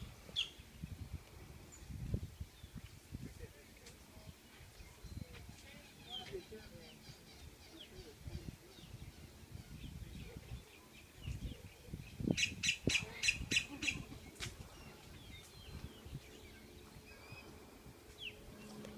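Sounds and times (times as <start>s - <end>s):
birds chirping: 0.0s - 18.9s
sharp high bird calls: 12.3s - 14.4s.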